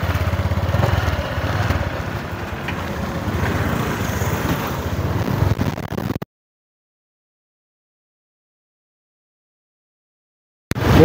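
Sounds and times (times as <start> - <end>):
motor scooter engines running: 0.0 - 5.6.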